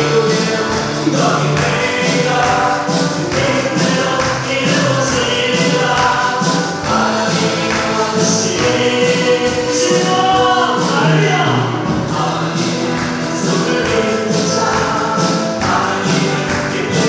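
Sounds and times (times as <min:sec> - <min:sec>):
band accompaniment: 0:00.0 - 0:17.0
choir singing worship song: 0:00.0 - 0:17.0.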